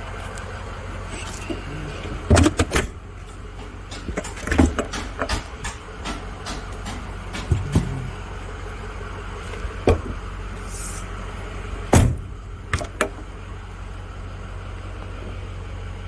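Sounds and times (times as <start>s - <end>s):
steady low hum: 0.0s - 14.8s
sharp knocks and clicks: 3.5s - 8.2s.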